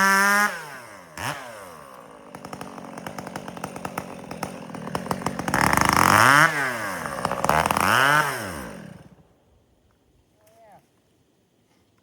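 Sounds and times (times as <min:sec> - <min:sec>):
chainsaw idling and revving: 0:00.0 - 0:09.2.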